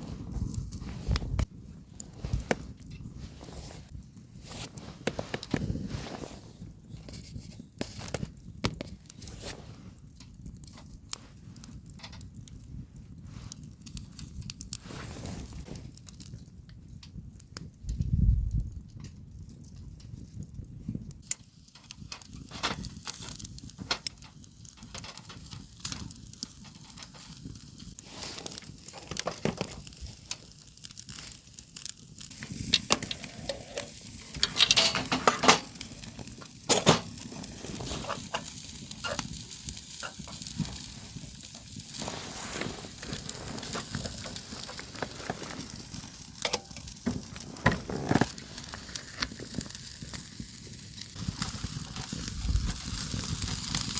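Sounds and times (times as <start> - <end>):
food sizzling as it fries: 24.8 - 53.9
utensils clattering: 32.8 - 35.8.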